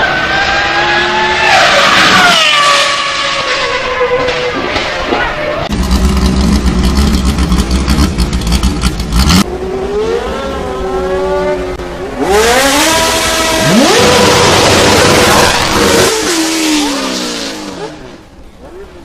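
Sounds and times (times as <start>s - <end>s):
car engine revving through gears: 5.7s - 18.2s
harsh rasping car engine: 5.7s - 18.3s.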